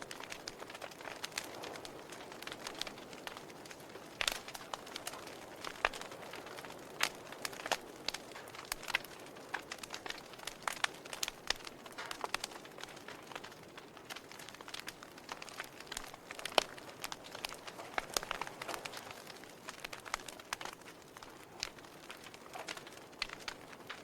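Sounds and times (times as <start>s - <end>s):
soft fire hiss: 0.0s - 24.0s
wood fire crackling and popping: 0.0s - 24.0s.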